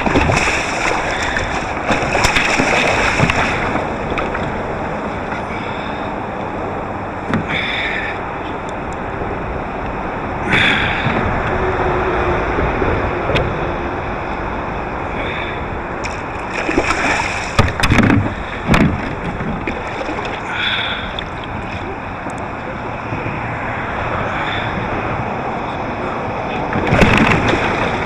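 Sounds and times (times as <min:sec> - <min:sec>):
splashes and knocks: 0:00.0 - 0:05.4, 0:16.0 - 0:22.4, 0:26.7 - 0:28.0
water lapping against a kayak: 0:00.0 - 0:28.0
wind: 0:00.0 - 0:28.0.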